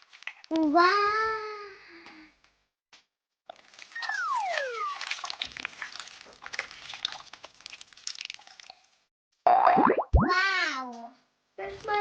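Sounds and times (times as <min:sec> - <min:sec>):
sticky crackles and pops: 0:03.5 - 0:09.0
slime squishing: 0:03.6 - 0:09.0
squeaky gliding sounds: 0:03.9 - 0:05.2.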